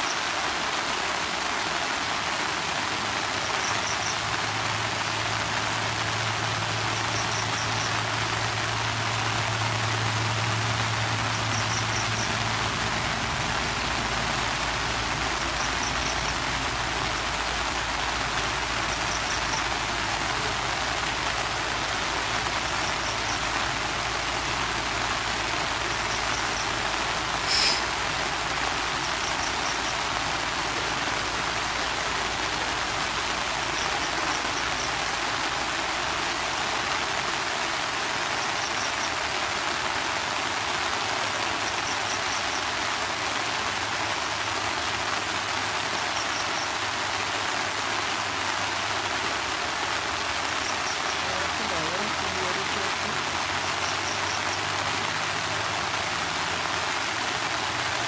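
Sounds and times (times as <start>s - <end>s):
steady rain: 0.0s - 58.0s
faint high chirp: 27.4s - 28.0s.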